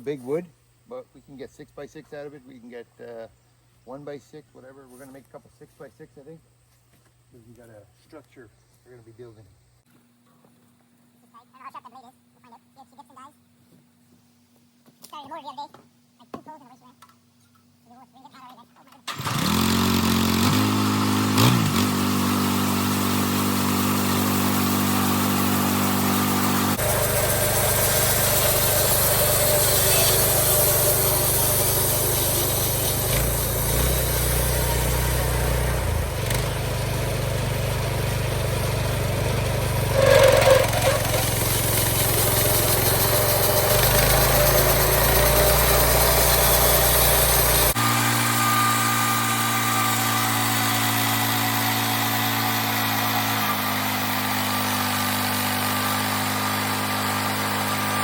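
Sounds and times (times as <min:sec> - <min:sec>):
sawmill engine running: 0:19.1 - 0:58.0.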